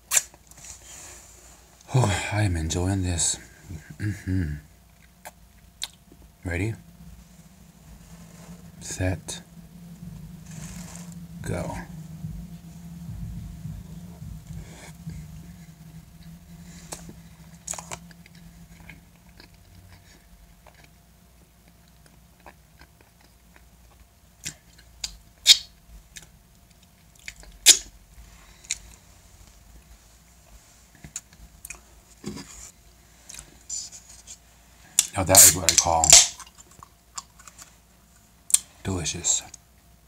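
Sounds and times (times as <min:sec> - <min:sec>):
soft chewing: 0:04.8 - 0:06.3, 0:09.4 - 0:38.8
wet lip smacks and clicks: 0:05.0 - 0:06.0.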